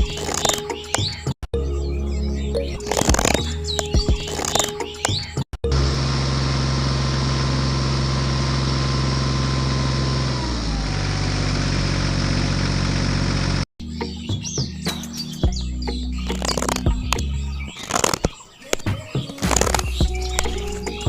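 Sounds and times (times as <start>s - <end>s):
birds chirping: 0.0s - 5.4s, 13.8s - 21.0s
music: 0.0s - 6.0s, 13.8s - 17.8s, 18.9s - 21.0s
engine idling: 5.7s - 13.6s.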